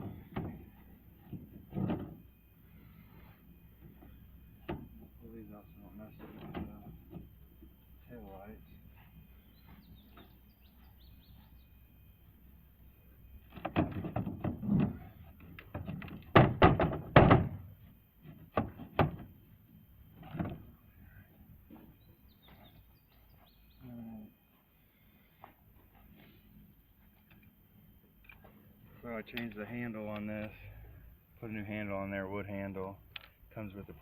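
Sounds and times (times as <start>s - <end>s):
heavy thunks and knocks: 15.7s - 17.6s.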